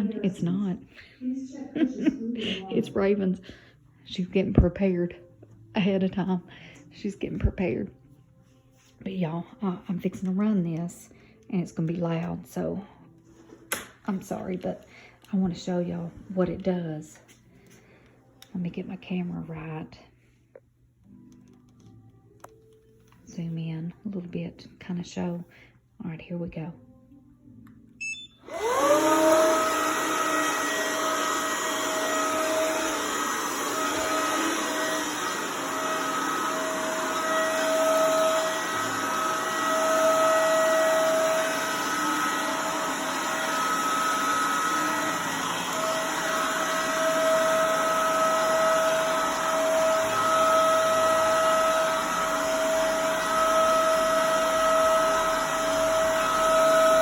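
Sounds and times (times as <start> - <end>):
vacuum cleaner motor running: 28.4 - 57.0.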